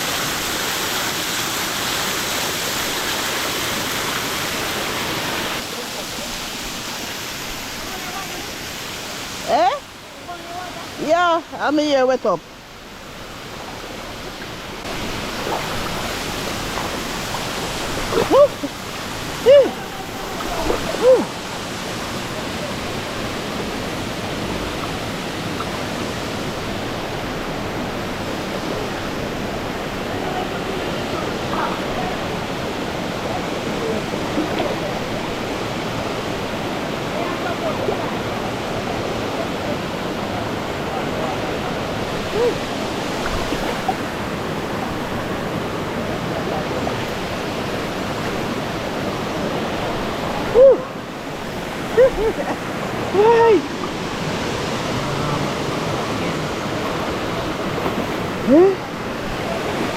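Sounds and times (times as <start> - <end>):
river water rushing: 0.0 - 59.9
person calling out: 19.4 - 21.3.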